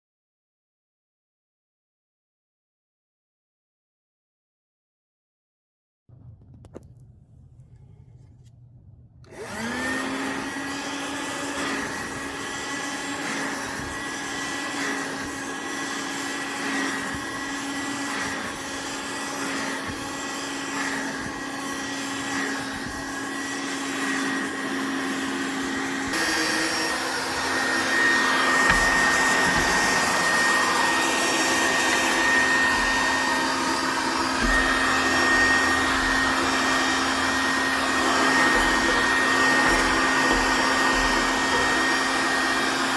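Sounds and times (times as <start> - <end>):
handheld vacuum whining: 9.2 - 42.9.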